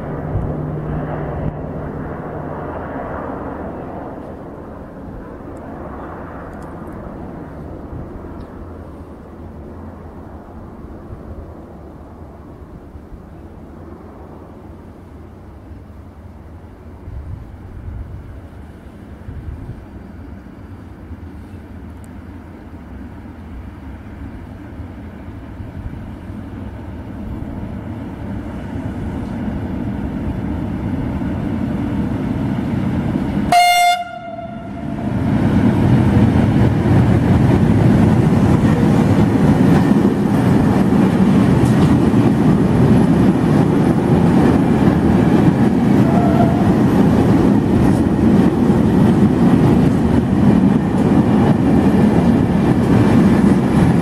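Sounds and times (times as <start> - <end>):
freight train rumbling: 0.0 - 54.0
locomotive horn blast: 33.5 - 35.2, 45.9 - 47.0.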